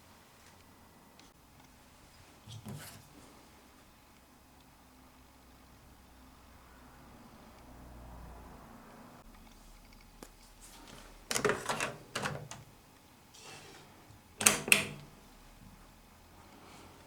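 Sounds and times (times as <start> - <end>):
washing machine dial clicks: 11.3 - 12.8, 14.4 - 15.2.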